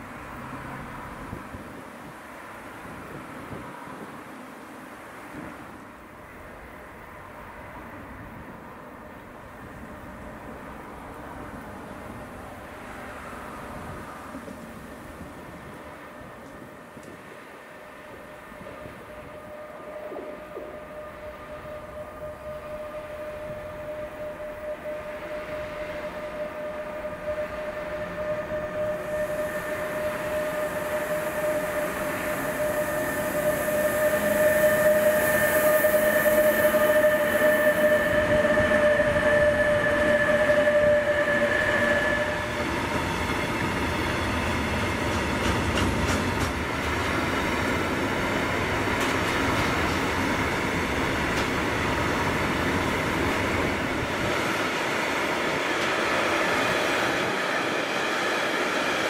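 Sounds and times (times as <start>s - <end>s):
electric locomotive whine: 0.0s - 59.0s
freight wagons wheel noise: 27.5s - 57.8s.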